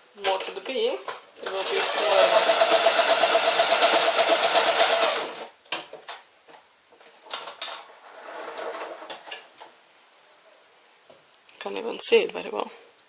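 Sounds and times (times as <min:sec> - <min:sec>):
sewing machine running: 0:01.4 - 0:05.5.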